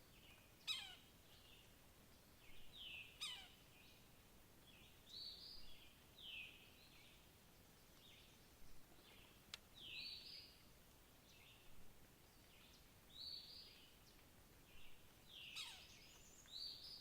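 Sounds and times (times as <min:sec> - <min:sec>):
faint background hiss: 0:00.0 - 0:17.0
bird rasping calls: 0:03.2 - 0:03.5.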